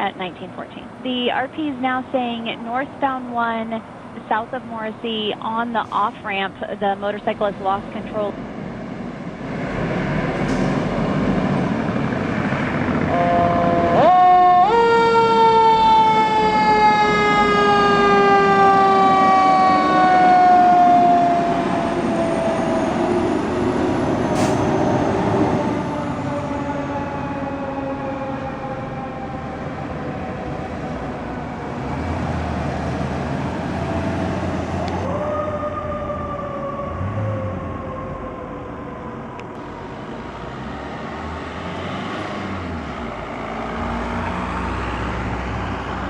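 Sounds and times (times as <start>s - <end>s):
traffic: 0.0s - 46.0s
truck rumble: 0.0s - 46.0s
fire truck siren wailing: 11.0s - 46.0s.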